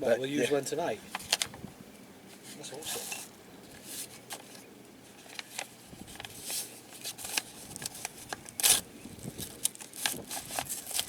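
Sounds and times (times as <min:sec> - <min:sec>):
paper rustling and crinkling: 0:02.3 - 0:11.0.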